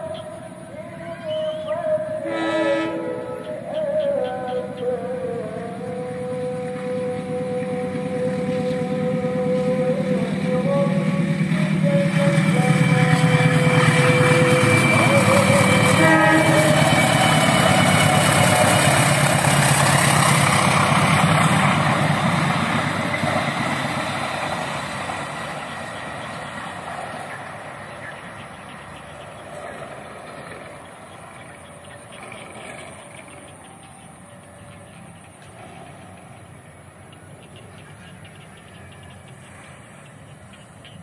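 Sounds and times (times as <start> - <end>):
locomotive engine running loudly: 0.0 - 36.8
wheel and rail noise: 0.0 - 41.0
short train horn notes: 2.2 - 3.5, 6.0 - 19.6.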